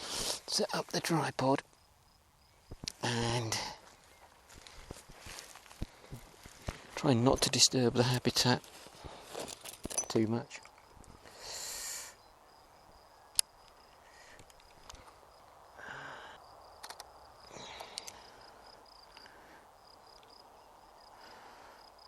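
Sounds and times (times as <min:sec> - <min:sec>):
crickets chirping: 0:00.0 - 0:22.0
tripod handling rustles: 0:04.2 - 0:07.0, 0:08.0 - 0:11.2
tripod click: 0:16.8 - 0:17.1.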